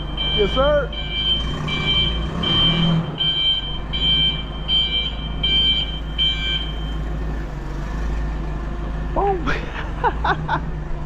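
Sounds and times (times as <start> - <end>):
lift motion alarm beeping: 0.0 - 7.1.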